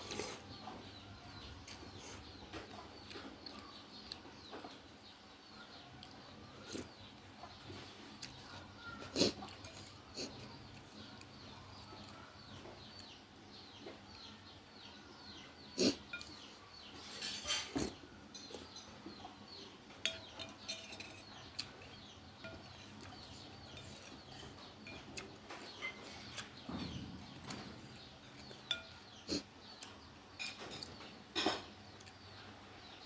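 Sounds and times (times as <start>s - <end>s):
spoon and chopsticks clinking on bowl: 20.0s - 25.2s, 28.3s - 29.0s.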